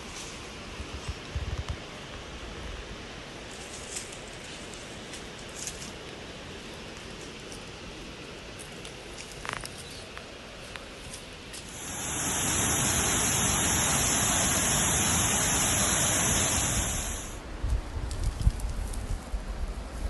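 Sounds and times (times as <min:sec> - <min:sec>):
waterfall rushing: 0:11.6 - 0:17.4.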